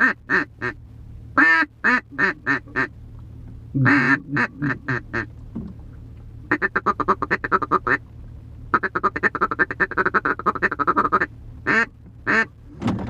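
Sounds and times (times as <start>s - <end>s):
duck call quacks: 0.0s - 0.8s, 1.4s - 2.9s, 3.8s - 5.3s, 6.5s - 8.0s, 8.7s - 12.5s
rapid clipped duck call notes: 1.4s - 2.9s, 3.8s - 5.3s, 8.7s - 12.5s.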